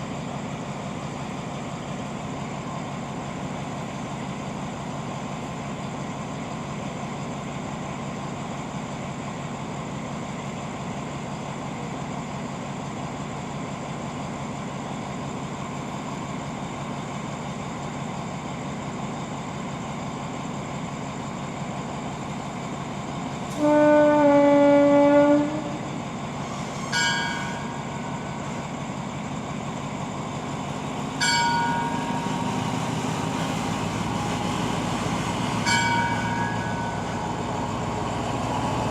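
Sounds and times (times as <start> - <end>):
diesel train idling: 0.0 - 38.9
train horn: 23.5 - 25.9.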